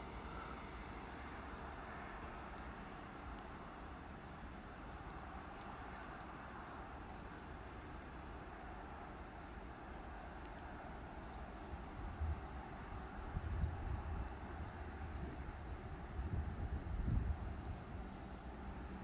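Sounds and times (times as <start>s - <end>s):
distant train rumbling hiss: 0.0s - 19.0s
faint insect chirps: 0.0s - 19.0s
wind buffeting microphone: 13.3s - 17.8s.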